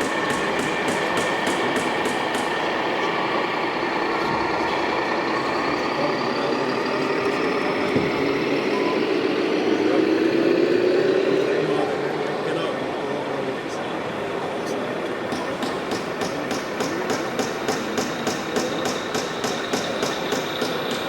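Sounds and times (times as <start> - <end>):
model truck engine revving: 0.0 - 21.0.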